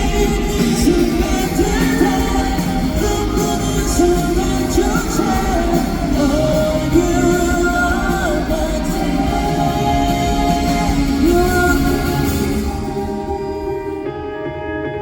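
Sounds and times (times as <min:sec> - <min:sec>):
person singing: 0:00.0 - 0:14.7
live rock band playing: 0:00.0 - 0:15.0.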